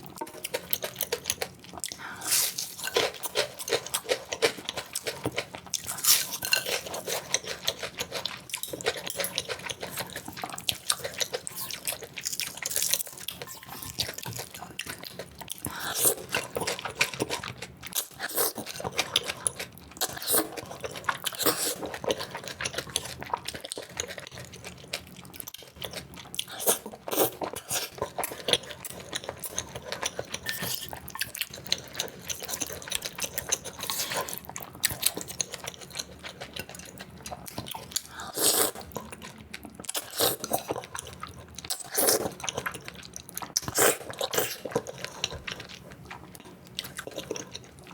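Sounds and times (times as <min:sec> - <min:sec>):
crunching and chewing: 0:00.0 - 0:47.9.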